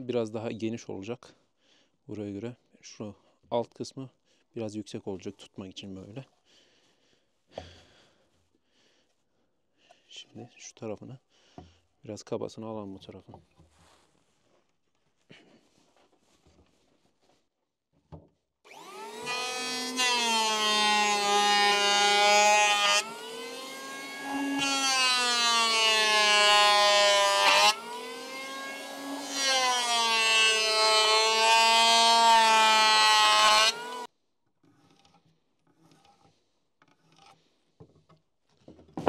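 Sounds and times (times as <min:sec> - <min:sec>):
power tool cutting wood: 0:18.7 - 0:34.1.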